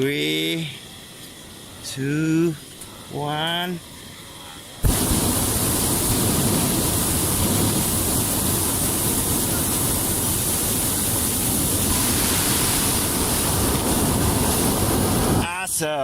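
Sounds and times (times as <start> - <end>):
loud steady rushing noise: 4.8 - 15.7.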